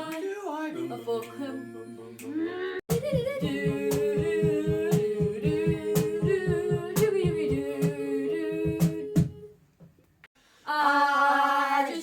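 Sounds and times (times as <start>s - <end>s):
sharp beat: 2.9s - 8.0s.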